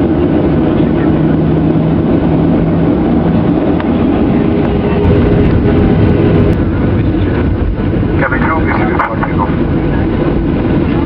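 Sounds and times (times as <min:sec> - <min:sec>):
higher engine tone: 0:00.0 - 0:11.0
jet engines rumbling: 0:00.0 - 0:11.0
low engine tone: 0:00.0 - 0:11.0.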